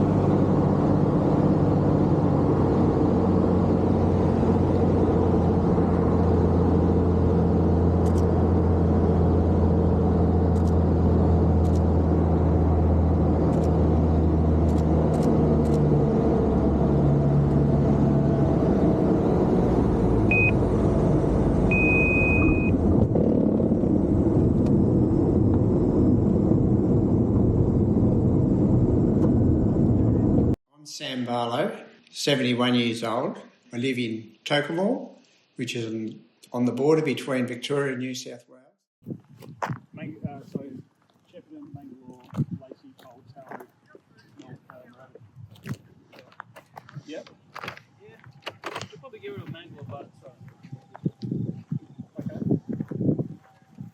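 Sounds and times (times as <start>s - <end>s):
road noise: 0.0s - 30.6s, 39.0s - 53.9s
vehicle engine hum: 0.0s - 30.6s
high-pitched electronic beeps: 21.7s - 22.8s.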